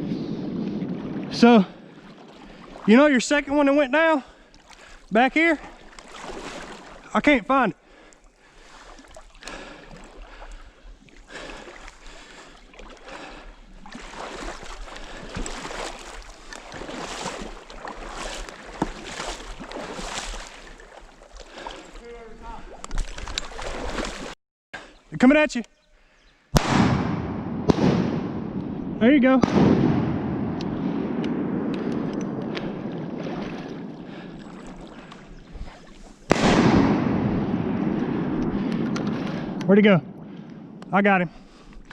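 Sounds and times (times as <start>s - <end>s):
wading through shallow water: 0.0s - 25.1s, 27.9s - 41.9s
shotgun shot: 26.6s - 33.2s, 36.3s - 39.7s.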